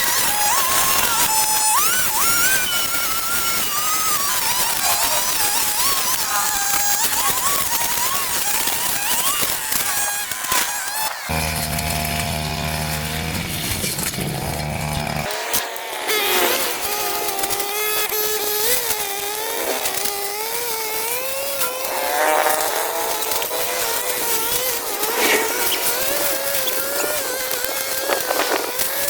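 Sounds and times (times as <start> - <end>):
garden power tool engine running: 8.6 - 29.0.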